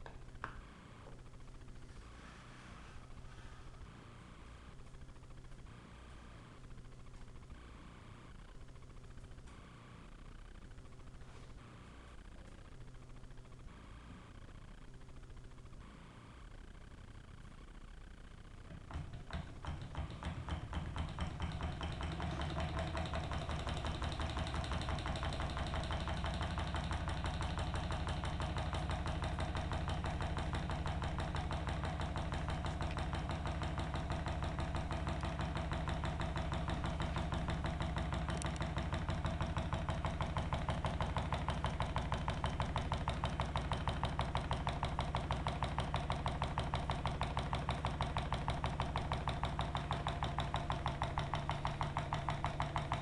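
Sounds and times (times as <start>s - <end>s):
low hum: 0.0s - 53.0s
stirling engine ticking: 18.6s - 53.0s.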